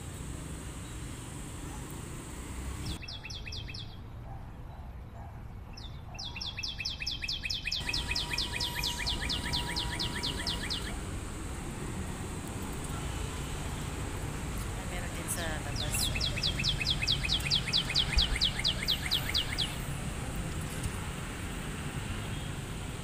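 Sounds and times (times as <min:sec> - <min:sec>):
bird chirping: 0:02.8 - 0:04.2, 0:05.7 - 0:11.1, 0:15.4 - 0:19.9.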